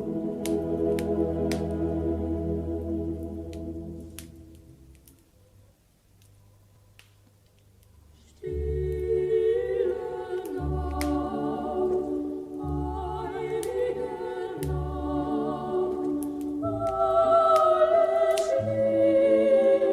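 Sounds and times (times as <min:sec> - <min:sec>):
choir singing: 0:00.0 - 0:04.0, 0:08.4 - 0:19.9
faint clicks: 0:06.2 - 0:09.0.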